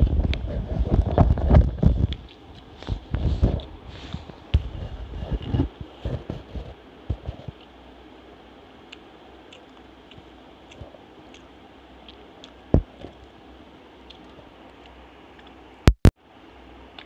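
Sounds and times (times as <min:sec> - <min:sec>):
person chewing fried food: 0:00.1 - 0:08.0, 0:08.7 - 0:15.7
wet mouth clicks: 0:08.9 - 0:13.3.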